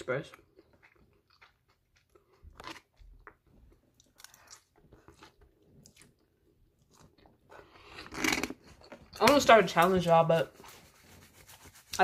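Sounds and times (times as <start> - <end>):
wet chewing of noodles: 0.2 - 9.2
noodle slurp: 7.6 - 8.8.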